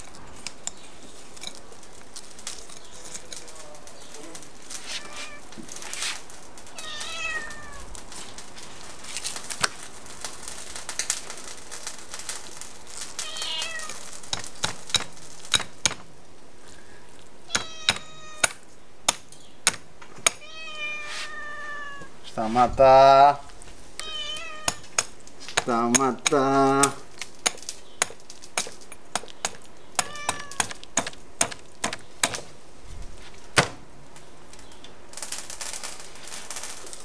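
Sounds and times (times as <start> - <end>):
cat meowing: 4.8 - 5.6, 6.7 - 7.9, 13.2 - 14.0, 17.5 - 18.5, 20.4 - 22.2, 24.0 - 24.8, 30.0 - 30.8.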